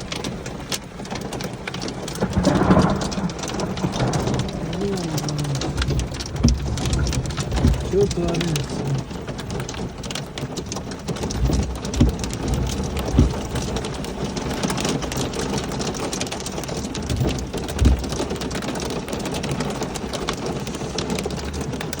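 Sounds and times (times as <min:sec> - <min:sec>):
heavy rain and hail: 0:00.0 - 0:22.0
low thumps: 0:02.2 - 0:09.7, 0:10.6 - 0:14.8, 0:17.0 - 0:18.5.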